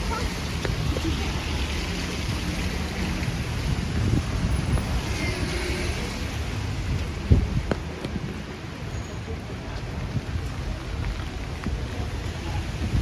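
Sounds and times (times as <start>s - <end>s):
low city rumble: 0.0s - 13.0s
rain hiss: 0.0s - 13.0s.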